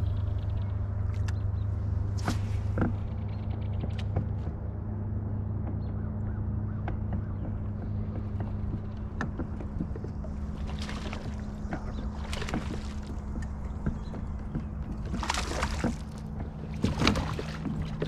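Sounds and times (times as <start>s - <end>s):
boat motor humming: 0.0s - 18.0s
water rushes: 15.1s - 18.0s.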